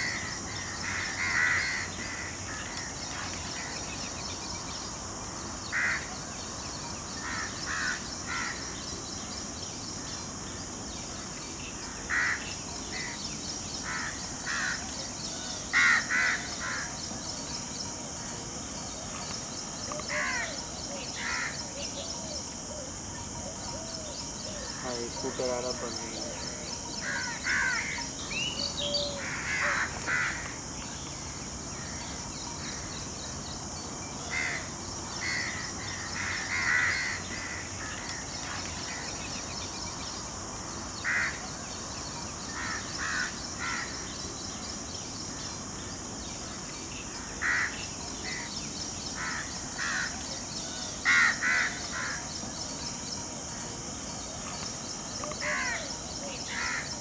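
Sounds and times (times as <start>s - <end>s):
birds cawing: 0.0s - 3.8s, 5.7s - 6.2s, 7.2s - 8.8s, 11.9s - 13.2s, 13.8s - 14.8s, 15.5s - 17.0s, 20.0s - 20.6s, 21.2s - 21.6s, 24.5s - 30.6s, 34.3s - 39.1s, 41.0s - 41.5s, 42.5s - 44.1s, 47.4s - 48.5s, 49.2s - 50.2s, 51.0s - 52.4s, 55.4s - 55.9s, 56.5s - 56.9s
steady high hiss: 0.0s - 57.0s.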